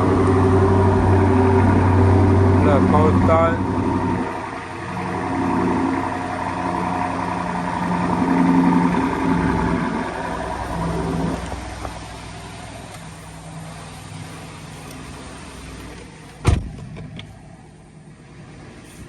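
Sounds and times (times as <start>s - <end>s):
car engine idling: 0.0s - 19.0s
sharp thump: 16.4s - 17.2s.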